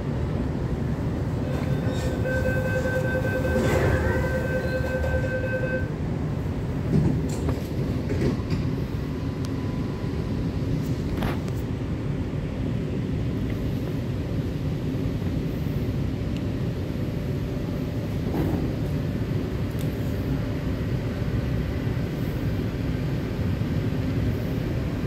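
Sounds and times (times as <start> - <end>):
train low rumble: 0.0 - 25.0
high door warning tone: 1.4 - 6.0.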